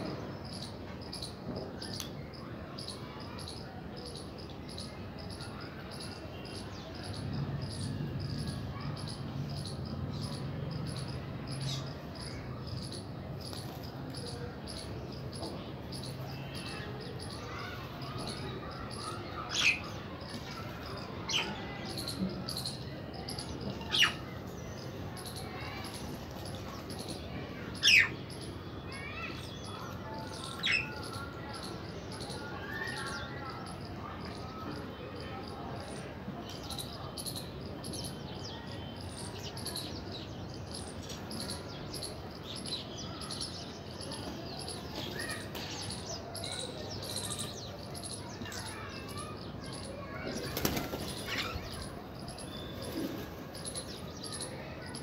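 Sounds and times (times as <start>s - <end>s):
loud sharp bird calls: 0.0s - 35.0s, 35.8s - 55.0s
wings flapping: 50.5s - 51.3s.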